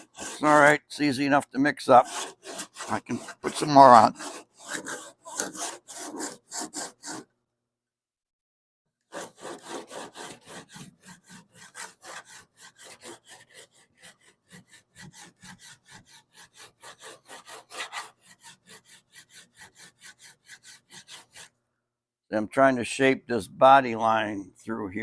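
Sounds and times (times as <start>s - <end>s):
hand sanding rasping strokes: 0.0s - 7.3s, 9.1s - 21.6s.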